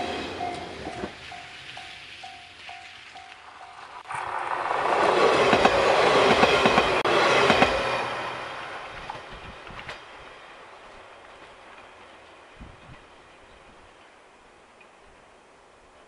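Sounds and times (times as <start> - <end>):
train wheels clacking over rail joints: 0.0 - 8.1, 8.9 - 10.3.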